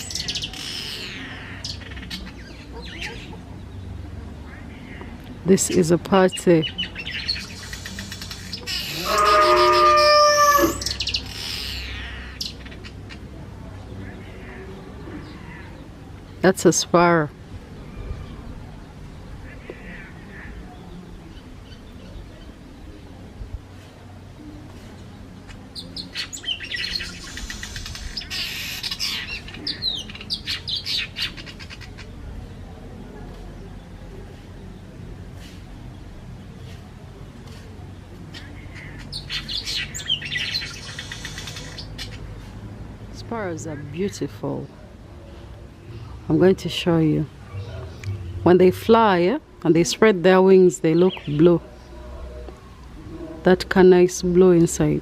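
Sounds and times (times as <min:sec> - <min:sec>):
birds chirping: 0:00.0 - 0:55.0
high bird chirps: 0:47.2 - 0:49.0.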